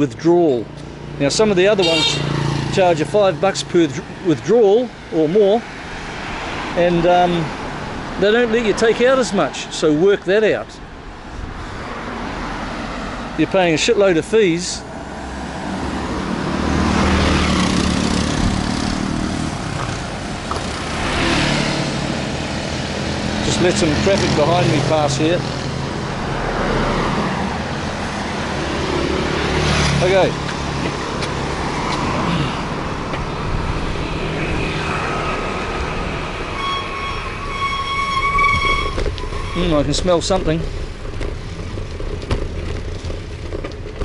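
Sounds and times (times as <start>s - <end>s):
motorbike engines: 0.0s - 44.0s
road traffic: 0.0s - 44.0s
motorbike engine rumble: 27.4s - 44.0s.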